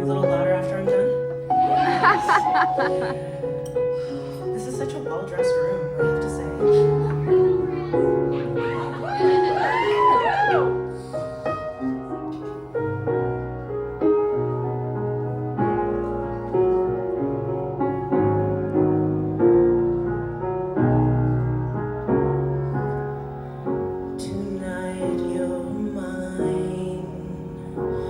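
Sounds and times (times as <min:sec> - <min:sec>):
piano playing slow chords: 0:00.0 - 0:28.0.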